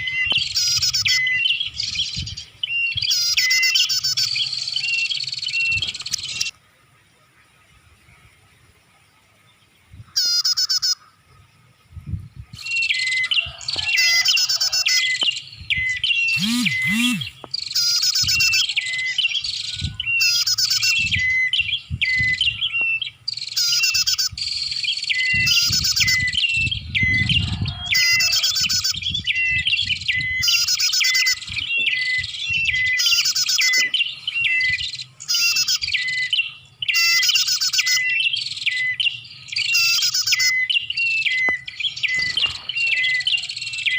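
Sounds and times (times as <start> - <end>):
high rapid bird chirping: 16.2 - 18.8.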